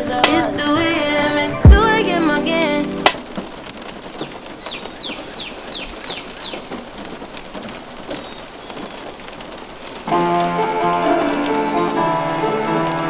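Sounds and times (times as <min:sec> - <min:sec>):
music: 0:00.0 - 0:03.2, 0:10.1 - 0:13.0
high falling chirps: 0:00.0 - 0:13.0
steady rain hiss: 0:00.0 - 0:13.0.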